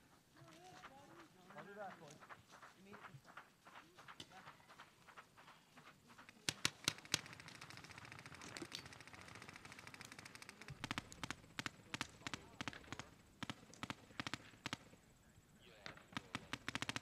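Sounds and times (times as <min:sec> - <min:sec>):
paintball markers firing: 0:06.2 - 0:15.1, 0:15.8 - 0:17.0.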